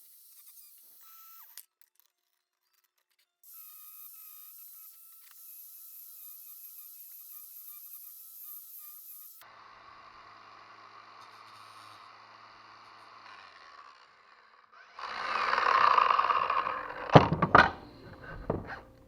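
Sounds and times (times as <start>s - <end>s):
power tool whirring: 0.0s - 1.7s, 3.4s - 19.0s
sharp knocks and clatters: 17.1s - 18.9s.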